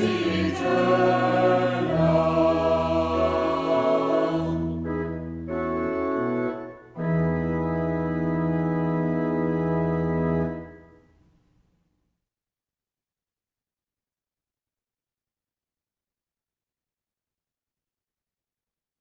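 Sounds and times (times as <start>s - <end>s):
congregation singing: 0.0s - 5.2s
organ chords: 0.0s - 11.1s.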